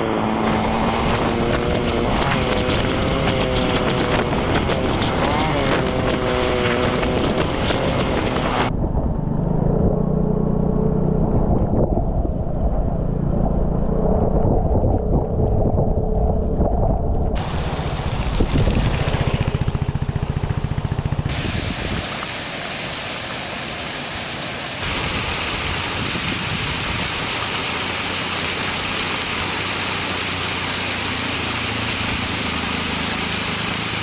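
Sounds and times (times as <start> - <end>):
scooter engine running: 0.0 - 8.7, 17.4 - 22.4, 24.8 - 34.0
wind buffeting microphone: 0.0 - 9.3, 11.3 - 22.4, 24.8 - 27.8.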